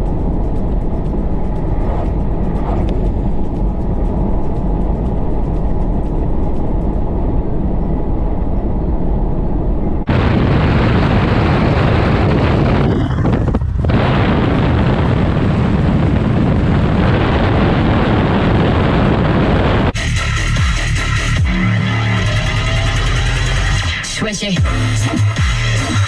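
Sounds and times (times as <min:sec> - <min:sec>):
wind noise on microphone: 0:00.0 - 0:20.7
road rumble: 0:00.0 - 0:26.0.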